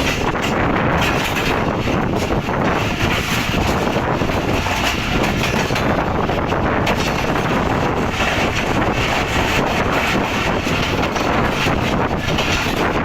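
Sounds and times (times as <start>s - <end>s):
train wheels rumbling on track: 0.0s - 13.0s
wind buffeting microphone: 0.0s - 13.0s.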